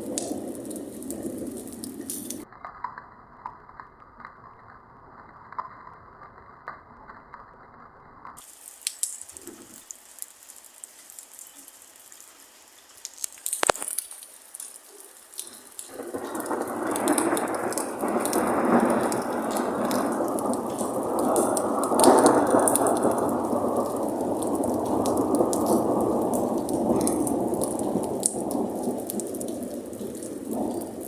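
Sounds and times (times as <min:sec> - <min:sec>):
steady rain: 0:00.0 - 0:07.6, 0:08.2 - 0:31.0
sharp thunder crack: 0:15.9 - 0:31.0.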